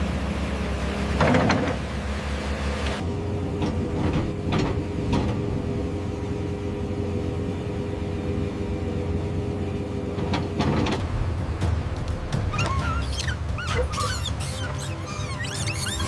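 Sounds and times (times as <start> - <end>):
excavator engine hum: 0.0 - 16.0.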